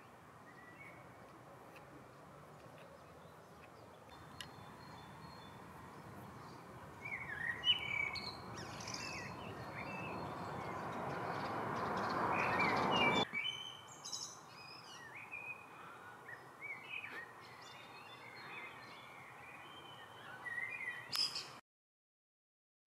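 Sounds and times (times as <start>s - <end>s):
small birds chirping and singing: 0.0s - 21.6s.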